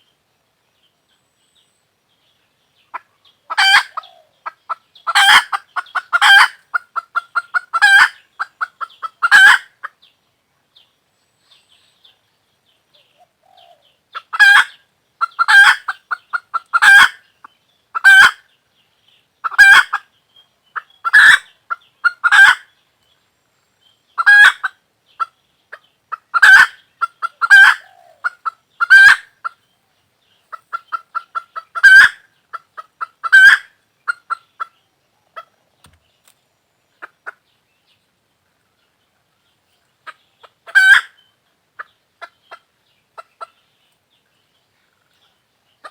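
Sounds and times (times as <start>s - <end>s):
hen cackling and squawking: 2.9s - 10.0s, 13.2s - 17.3s, 17.9s - 18.5s, 19.4s - 20.1s, 20.7s - 22.7s, 24.2s - 29.7s, 30.4s - 35.7s, 37.0s - 37.4s, 40.0s - 43.6s.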